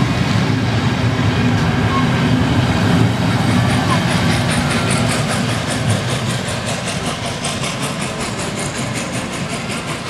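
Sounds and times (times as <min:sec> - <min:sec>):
carriages rolling on rails: 0:00.0 - 0:10.0
rapid pulsing steam hiss: 0:02.5 - 0:10.0.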